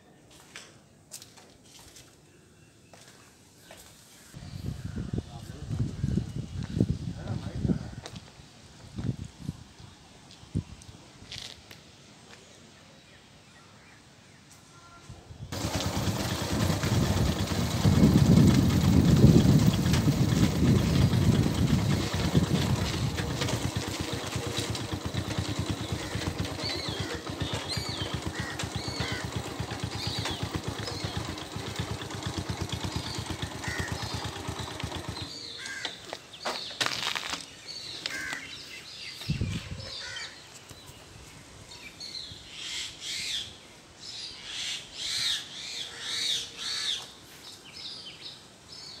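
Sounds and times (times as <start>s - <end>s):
low rumbling noise: 15.6s - 33.6s
birds chirping and calling: 15.6s - 49.0s.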